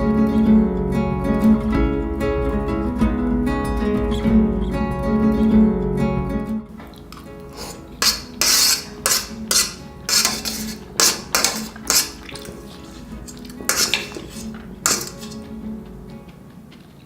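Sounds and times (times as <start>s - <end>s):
quiet background music: 0.0s - 17.0s
metal utensil scraping a pan: 6.9s - 15.6s.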